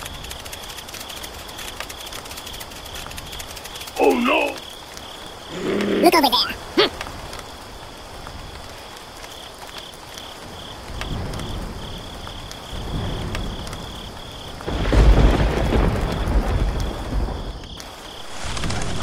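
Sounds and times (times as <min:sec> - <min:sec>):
rain falling: 0:00.0 - 0:19.0
thunder rumbling: 0:10.5 - 0:19.0.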